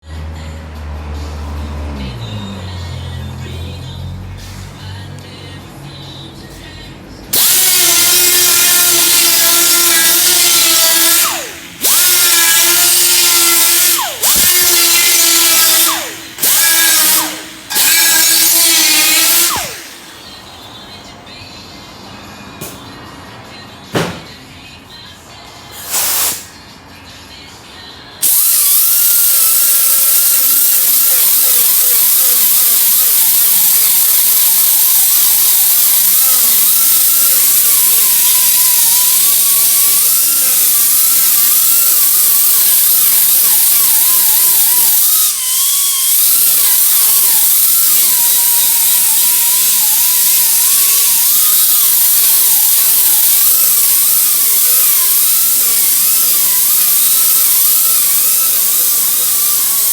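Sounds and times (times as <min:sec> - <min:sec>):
electric grinder on metal: 0:07.3 - 0:20.4, 0:28.2 - 0:59.9.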